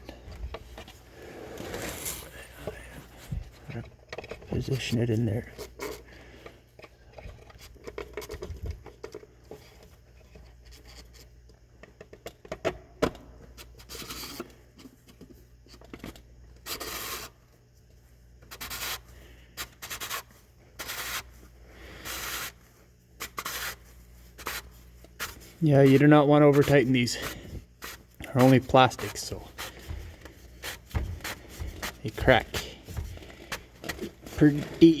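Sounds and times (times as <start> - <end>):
plastic scraping on plastic: 24.4 - 35.0.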